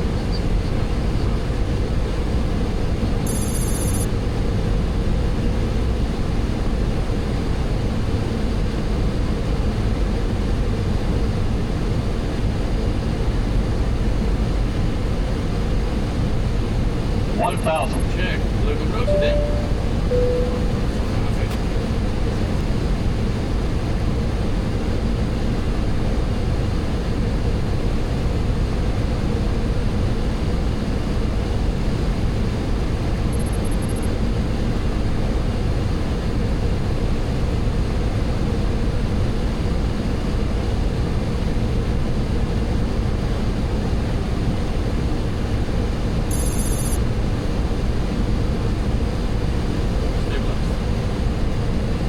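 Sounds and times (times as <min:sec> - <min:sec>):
airflow and engine noise: 0:00.0 - 0:52.0
high-pitched electronic beeps: 0:03.3 - 0:04.1, 0:19.1 - 0:21.1, 0:46.3 - 0:47.0.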